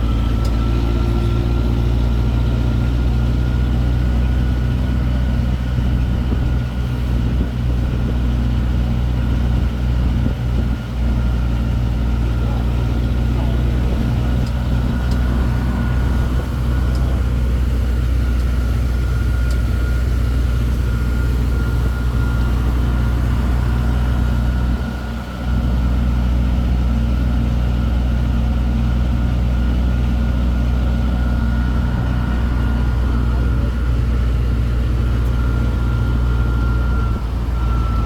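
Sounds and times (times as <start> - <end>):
train engine humming: 0.0 - 38.0
faint high whine: 13.4 - 25.7.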